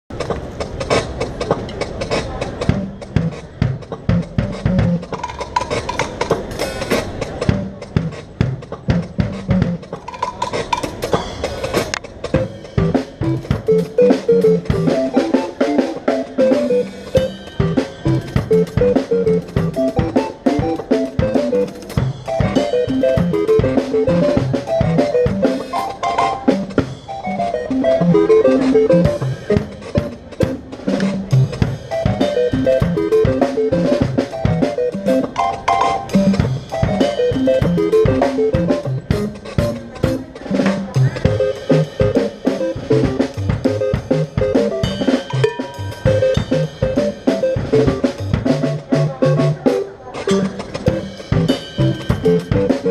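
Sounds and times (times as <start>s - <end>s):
steady drum beat: 0.1s - 52.9s
quick melodic line: 12.3s - 52.9s.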